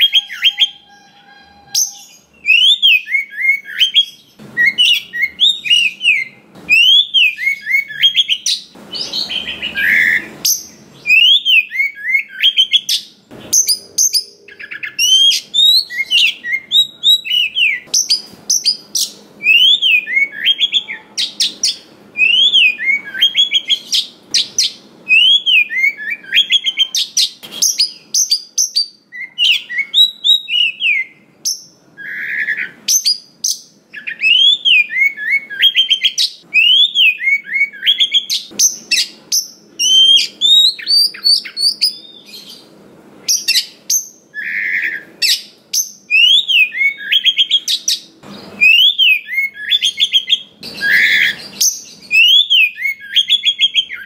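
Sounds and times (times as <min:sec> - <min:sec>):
harsh rasping bird note: 0:00.0 - 0:02.5
bird singing whistled notes: 0:00.0 - 0:42.7, 0:43.3 - 0:54.0.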